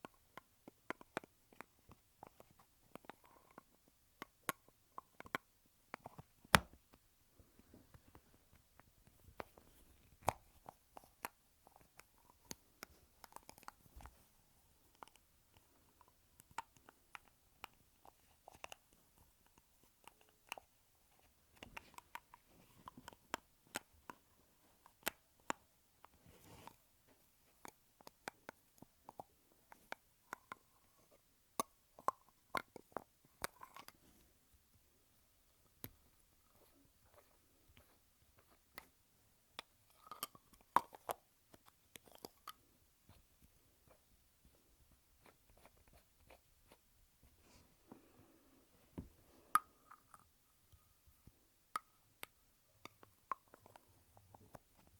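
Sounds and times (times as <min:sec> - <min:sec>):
soft rustling: 0:43.2 - 0:49.6.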